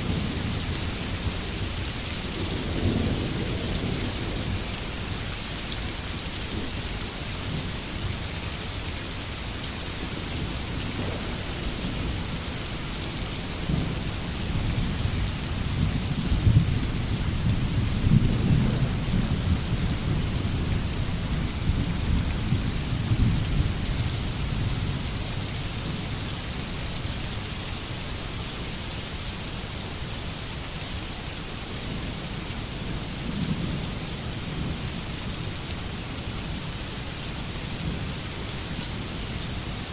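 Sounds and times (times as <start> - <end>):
low rumble of thunder: 0.0 - 5.2, 10.0 - 26.1
steady rain falling: 0.0 - 39.9.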